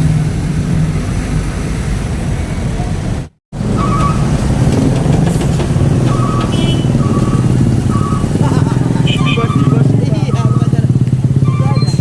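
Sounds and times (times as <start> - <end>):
traffic engines rumbling: 0.0 - 12.0
two-tone electronic beep: 6.1 - 8.3, 9.1 - 10.8, 11.4 - 12.0.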